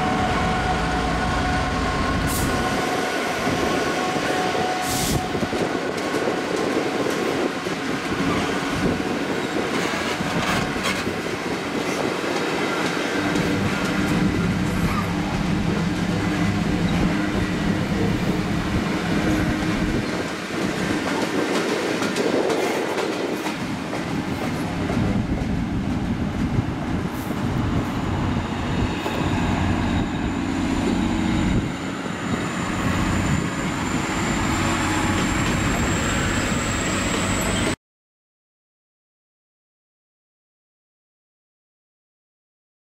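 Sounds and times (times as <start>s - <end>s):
diesel locomotive engines: 0.0s - 37.8s
wheels rumbling and clicking on track: 5.4s - 37.8s.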